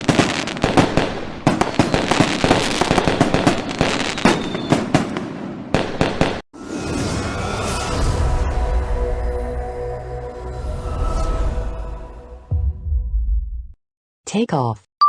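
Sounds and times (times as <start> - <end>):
fireworks bangs and crackles: 0.0 - 7.2.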